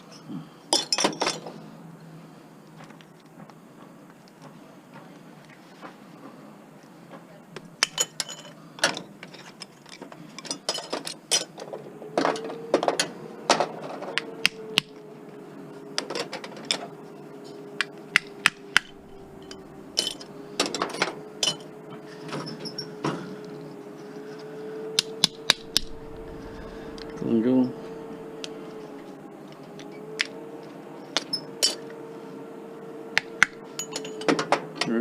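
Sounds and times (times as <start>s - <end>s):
faint hum: 16.9s - 30.0s
metal parts clinking: 18.9s - 20.3s.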